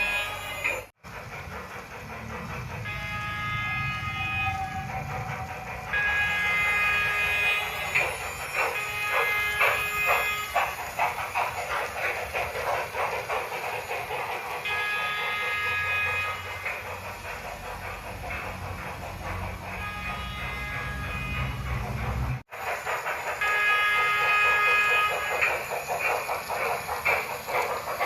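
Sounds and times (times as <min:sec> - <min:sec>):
steam whistle: 0:00.0 - 0:00.9, 0:02.8 - 0:10.8, 0:14.6 - 0:17.0, 0:19.2 - 0:21.8, 0:23.4 - 0:25.5
steam locomotive chuffing: 0:00.0 - 0:28.0.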